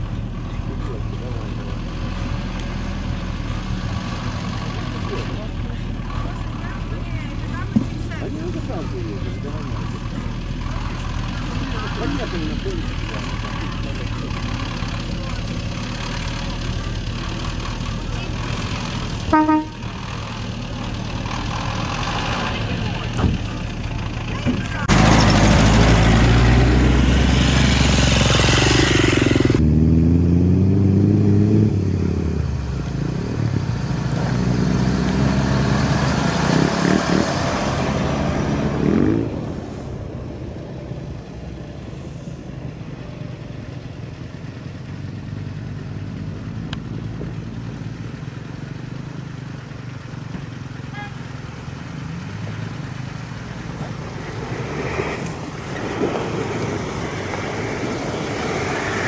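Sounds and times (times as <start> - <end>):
off-road vehicles running: 0.0 - 59.0
truck engine passing: 0.0 - 59.0
vehicle approaching: 0.0 - 59.0
dirt bike engine passing: 24.8 - 39.7, 50.6 - 59.0.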